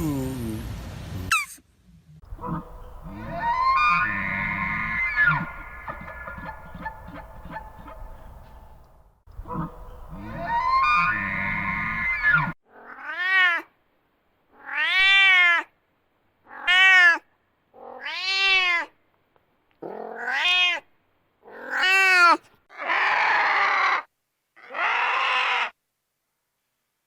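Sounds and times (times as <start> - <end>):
cat meowing: 2.4 - 5.7, 9.5 - 13.7, 14.6 - 15.7, 16.5 - 17.2, 17.8 - 18.9, 19.8 - 20.9, 21.5 - 24.0.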